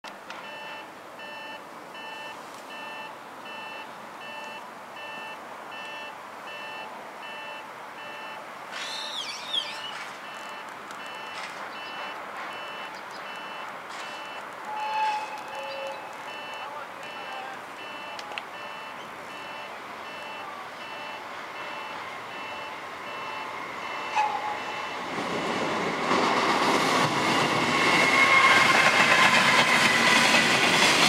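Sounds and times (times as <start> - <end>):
railway warning signal beeping: 0.4 - 31.0
high wavering squeal: 8.8 - 10.0, 14.7 - 16.1, 22.5 - 25.1, 27.3 - 29.9.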